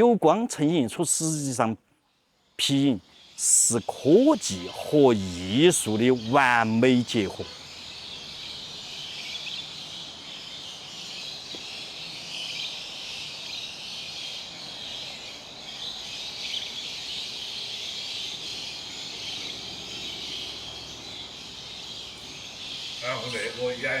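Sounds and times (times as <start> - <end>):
insects shrilling: 0.2 - 1.8, 2.6 - 10.2.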